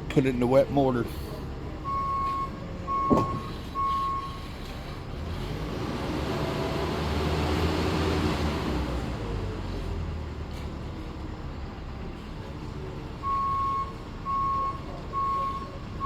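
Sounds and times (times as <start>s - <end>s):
heavy vehicle engine running: 0.0s - 16.0s
reversing alarm beeps: 1.8s - 4.5s, 13.2s - 15.8s.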